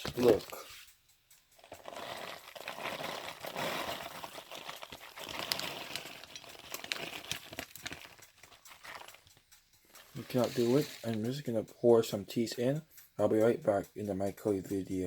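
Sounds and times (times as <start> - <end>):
plastic bag crinkling: 1.6 - 11.2
small clicks and taps: 4.2 - 11.3.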